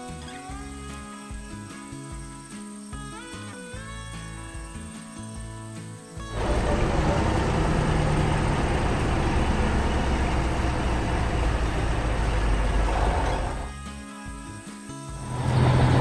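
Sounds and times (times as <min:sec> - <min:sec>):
heavy vehicle engine running: 0:06.3 - 0:13.7, 0:15.2 - 0:16.0.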